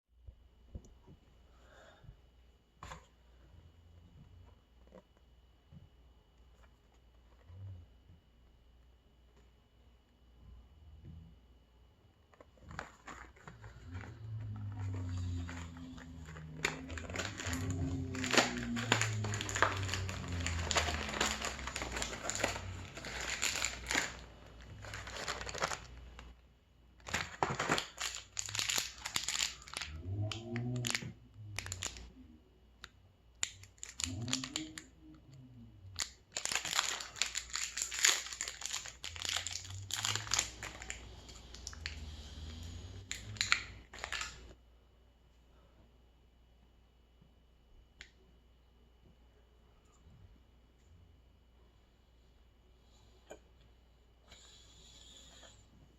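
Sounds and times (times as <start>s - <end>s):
crinkling and crumpling: 12.2s - 26.4s, 27.0s - 32.1s, 33.4s - 34.9s, 35.9s - 44.6s
eating sounds: 13.4s - 26.0s, 33.5s - 44.5s.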